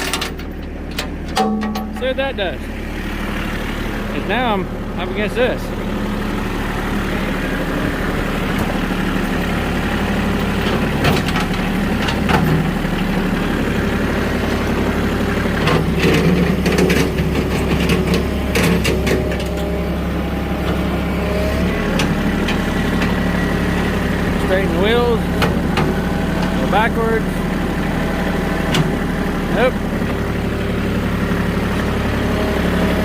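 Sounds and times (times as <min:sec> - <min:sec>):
sharp knocks and clanks: 0:00.0 - 0:02.3
vehicle engine running: 0:00.0 - 0:33.0.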